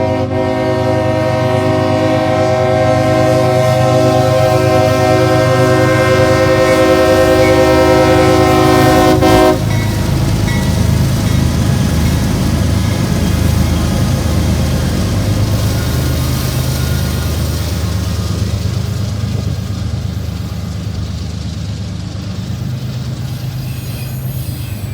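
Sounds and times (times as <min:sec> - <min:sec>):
locomotive air horn chord: 0:00.0 - 0:09.8
diesel locomotive rumble: 0:00.0 - 0:24.9.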